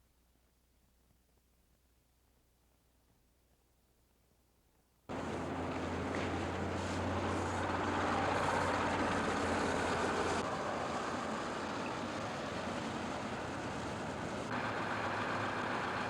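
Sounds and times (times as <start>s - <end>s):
bus engine drone: 5.1s - 16.0s
road traffic noise: 5.1s - 16.0s.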